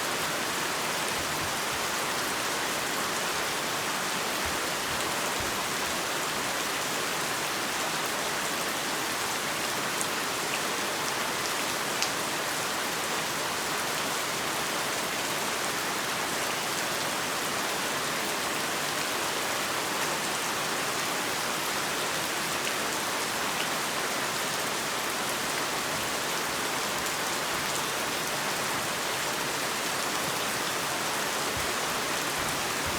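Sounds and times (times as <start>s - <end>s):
heavy rain falling: 0.0s - 9.2s, 17.4s - 32.9s.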